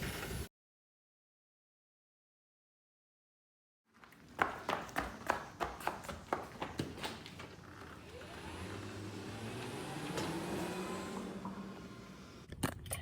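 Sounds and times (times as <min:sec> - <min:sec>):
car engine humming: 0:07.6 - 0:12.5.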